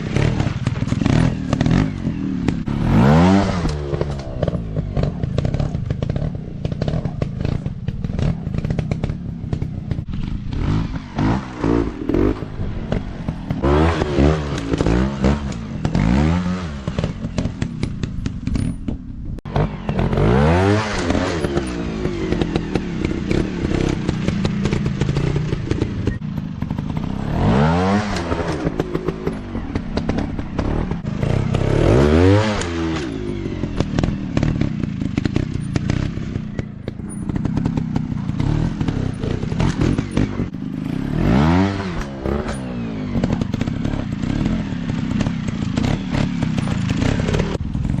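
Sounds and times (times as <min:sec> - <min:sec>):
dirt bike engines revving: 0:00.0 - 0:48.0.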